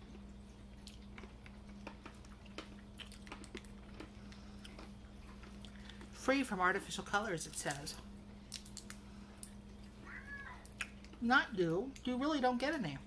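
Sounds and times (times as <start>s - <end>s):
candy crunching: 0.0s - 6.2s, 7.4s - 11.2s.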